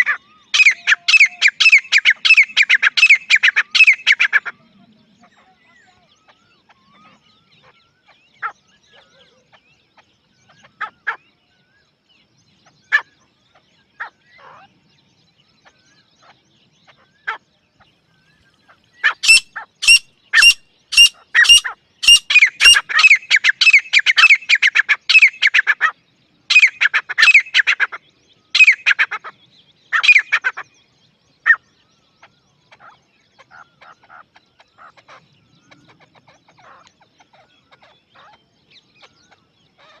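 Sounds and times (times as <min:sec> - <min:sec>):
francolin calling: 0:00.0 - 0:09.6, 0:18.6 - 0:30.6.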